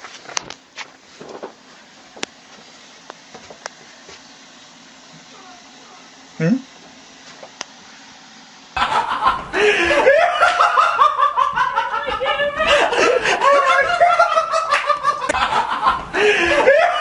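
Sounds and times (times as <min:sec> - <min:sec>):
high-pitched laughter: 0:08.8 - 0:17.0.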